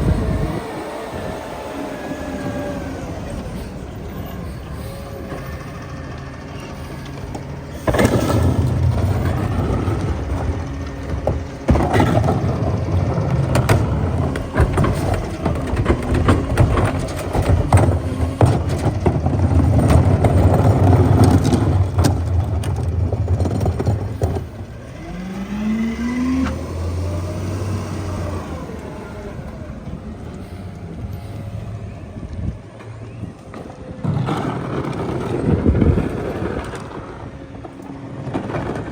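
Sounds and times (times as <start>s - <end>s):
rising hydraulic whine: 0.0s - 38.9s
truck engine and hydraulics drone: 0.0s - 38.9s
trash crunching and snapping: 6.1s - 25.1s.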